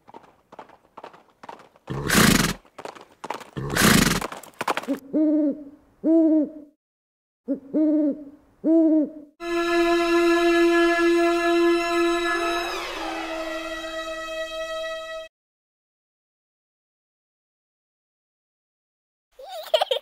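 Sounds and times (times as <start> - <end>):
low hooting bird calls: 5.0 - 6.8, 7.5 - 9.4
long steady musical note: 9.4 - 15.3.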